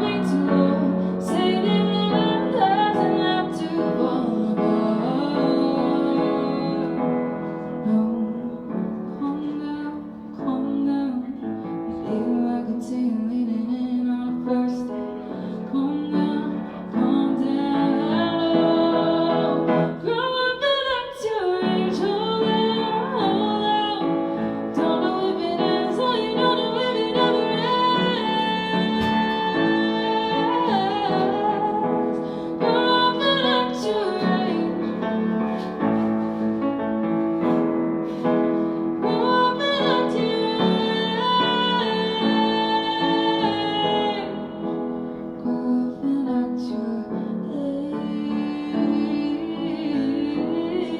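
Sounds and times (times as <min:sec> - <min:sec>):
woman singing: 0:00.0 - 0:36.4, 0:37.4 - 0:50.9
instrumental accompaniment: 0:21.8 - 0:45.7.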